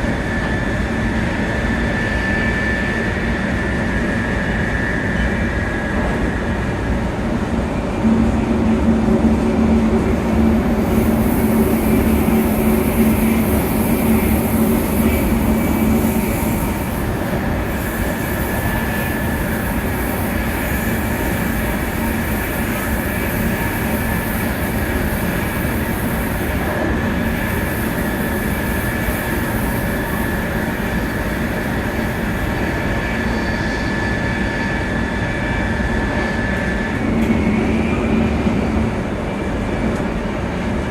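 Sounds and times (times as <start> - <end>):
thin high whine: 0.0 - 39.2
train wheels and air rumbling: 0.0 - 40.9
low hum: 7.8 - 16.8.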